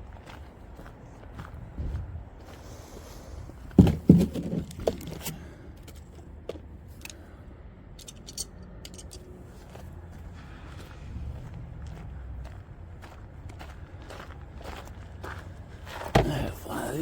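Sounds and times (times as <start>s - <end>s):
light clattering of parts: 3.6s - 9.8s
tools clunking down: 3.8s - 6.2s, 8.0s - 9.3s.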